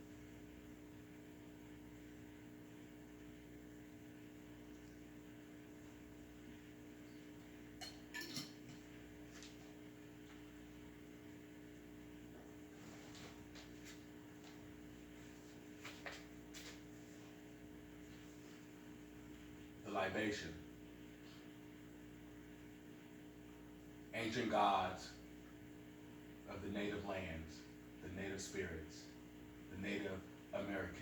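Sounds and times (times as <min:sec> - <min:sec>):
low electrical hum: 0:00.0 - 0:31.0
dishware clinking: 0:07.8 - 0:08.6.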